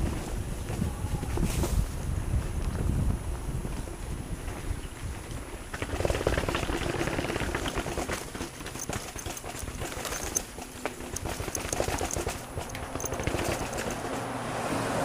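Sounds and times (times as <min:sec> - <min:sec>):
bike frame and chain clatter: 0:04.5 - 0:14.2
tyres crunching over stones: 0:05.3 - 0:14.2.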